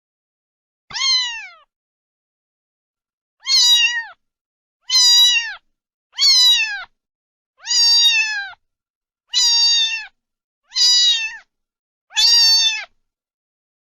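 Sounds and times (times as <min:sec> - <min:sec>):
cat meowing: 0:00.9 - 0:01.7, 0:03.4 - 0:04.2, 0:04.8 - 0:07.0, 0:07.6 - 0:08.6, 0:09.3 - 0:11.5, 0:12.1 - 0:13.0.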